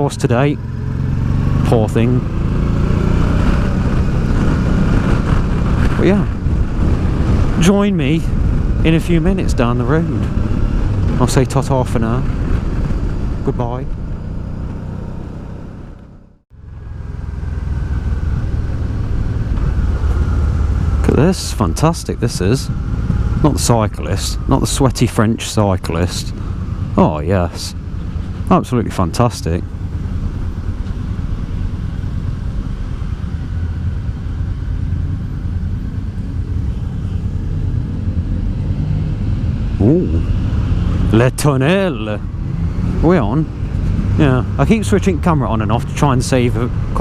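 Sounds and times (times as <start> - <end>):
motorcycle engine running: 0.0 - 47.0
wind and road noise: 0.0 - 47.0.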